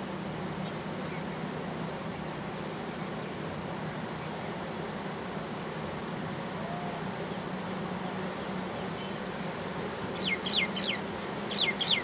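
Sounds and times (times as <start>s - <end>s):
steady rushing noise: 0.0s - 12.0s
bird calls sliding downward: 10.2s - 12.0s.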